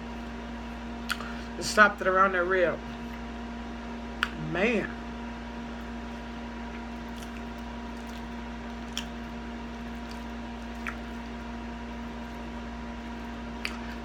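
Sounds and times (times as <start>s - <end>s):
steady electrical hum: 0.0s - 14.0s
wet chewing: 0.1s - 1.5s, 5.6s - 14.0s
lip smacks and clicks: 1.0s - 1.4s, 4.2s - 4.4s, 6.7s - 14.0s.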